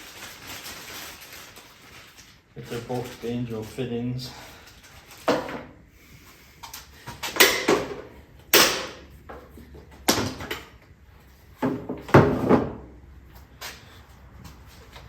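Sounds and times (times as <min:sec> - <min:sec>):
tools knocking and clattering: 0:06.6 - 0:10.8.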